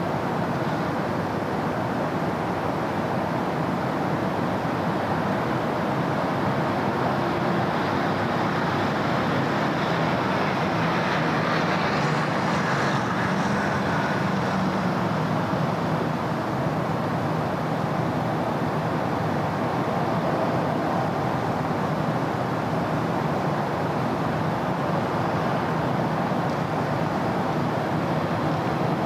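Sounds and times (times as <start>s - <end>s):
road traffic: 0.0s - 29.0s.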